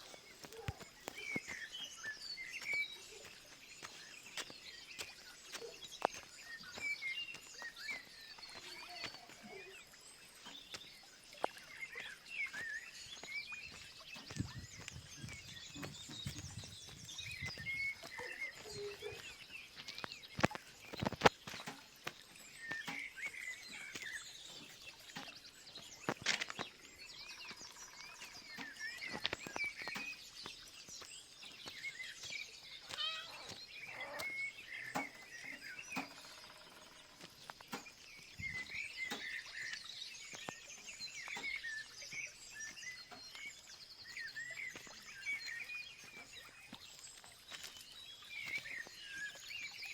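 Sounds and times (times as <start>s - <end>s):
birds chirping and trilling: 0.0s - 49.9s.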